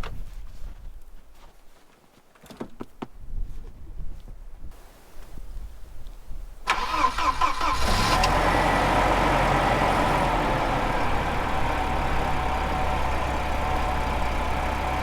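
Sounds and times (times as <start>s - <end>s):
car engine starting and idling: 6.7s - 15.0s.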